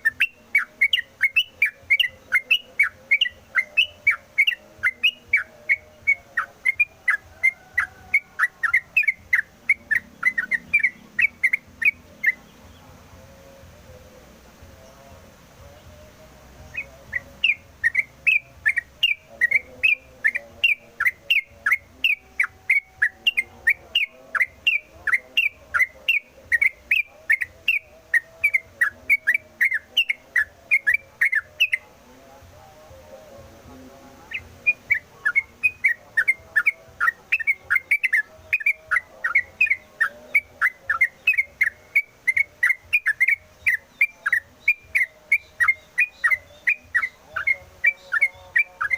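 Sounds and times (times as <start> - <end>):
bird singing whistled notes: 0.0 - 14.1, 14.7 - 31.9, 34.2 - 48.9.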